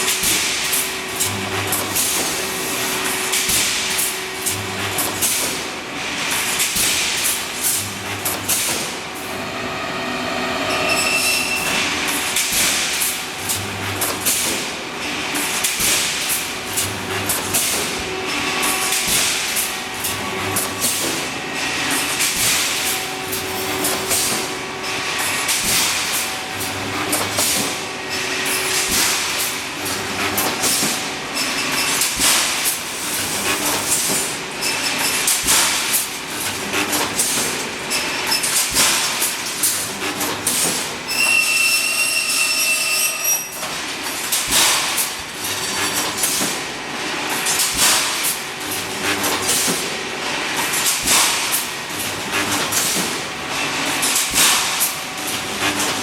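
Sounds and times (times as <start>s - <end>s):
welding machine clattering: 43.2s - 56.0s.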